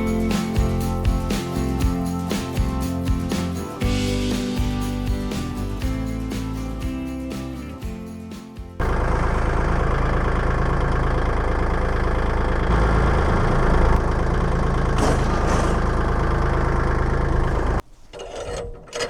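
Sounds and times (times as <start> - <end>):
engine rumbling: 0.0 - 19.0.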